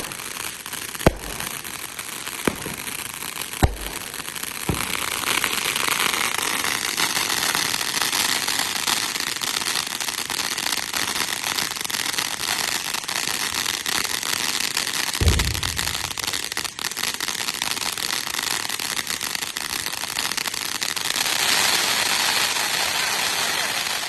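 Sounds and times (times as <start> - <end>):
fireworks crackling: 0.0 - 24.0
sharp thud: 15.2 - 16.3
low firework boom: 15.2 - 16.4.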